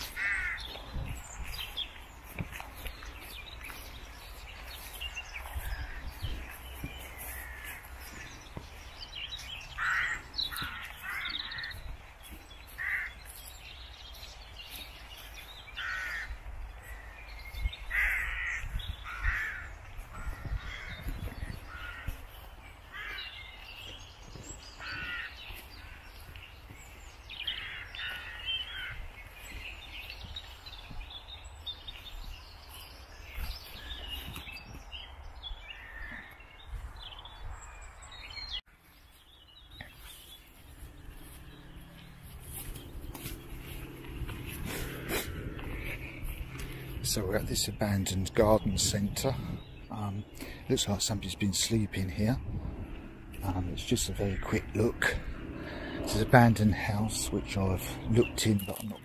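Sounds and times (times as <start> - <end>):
birds calling: 0.0 - 59.0
steady low rumble: 39.6 - 59.0.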